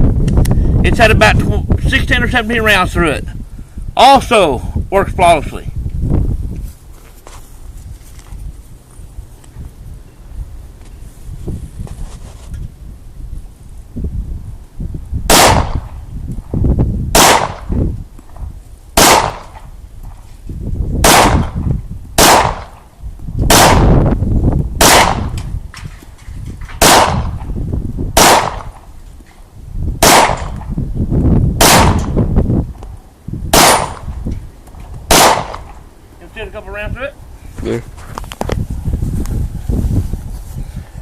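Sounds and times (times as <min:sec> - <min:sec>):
pistol shots with echo: 0:15.3 - 0:15.9, 0:17.1 - 0:17.7, 0:19.0 - 0:19.6, 0:21.0 - 0:21.6, 0:22.2 - 0:22.8, 0:23.5 - 0:23.9, 0:24.8 - 0:25.3, 0:26.8 - 0:27.4, 0:28.2 - 0:28.8, 0:30.0 - 0:30.6, 0:31.6 - 0:32.2, 0:33.5 - 0:34.1, 0:35.1 - 0:35.8.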